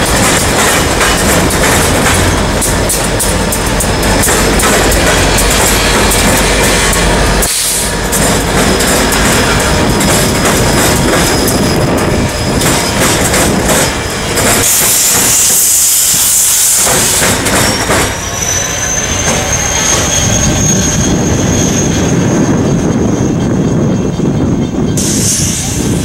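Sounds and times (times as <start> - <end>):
wheels clacking over rails: 0.0 - 15.5, 16.8 - 20.2
diesel locomotives rumbling: 0.0 - 26.0
high wheel squeal: 2.1 - 26.0.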